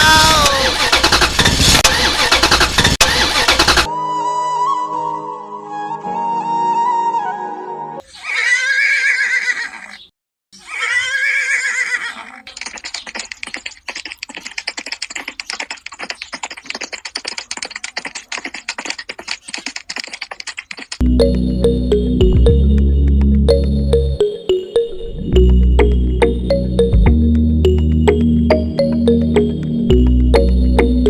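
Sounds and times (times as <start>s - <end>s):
fast clattering hoofbeats: 0.5s - 3.9s, 12.4s - 21.0s
horse whinnying: 8.1s - 12.5s.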